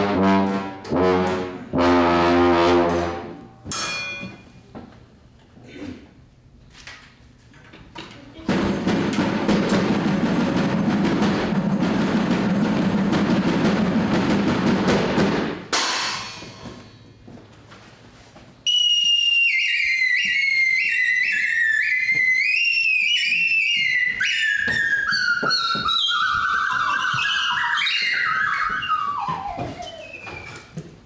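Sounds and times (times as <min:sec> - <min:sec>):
drum roll: 0:08.4 - 0:16.8, 0:25.9 - 0:30.5
cymbal crash ringing: 0:15.7 - 0:16.8
high whistle-like melody: 0:18.7 - 0:31.0.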